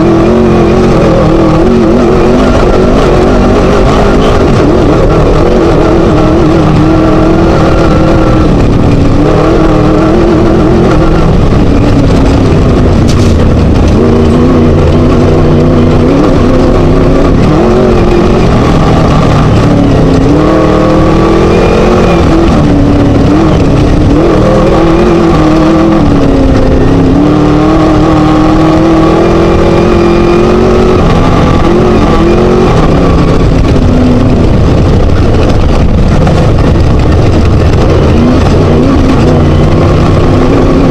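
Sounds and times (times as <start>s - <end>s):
race buggy engine revving: 0.0s - 40.9s
rattling and road noise: 0.0s - 40.9s.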